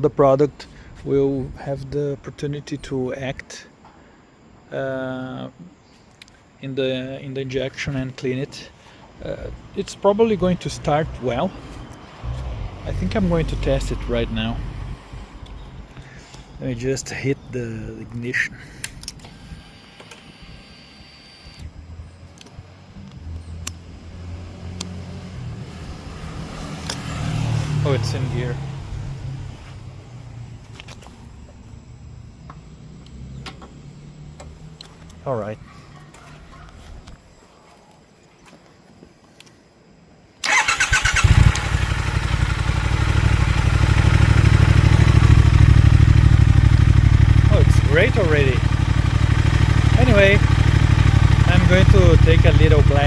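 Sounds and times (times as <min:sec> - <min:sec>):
faint electronic whine: 0:13.0 - 0:23.6, 0:29.2 - 0:35.8
electric starter cranking: 0:40.4 - 0:41.8
motorcycle engine idling: 0:40.5 - 0:53.0.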